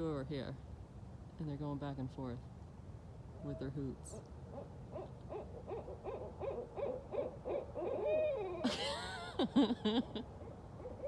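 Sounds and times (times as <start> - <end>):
owls hooting and calling: 3.4 - 8.7.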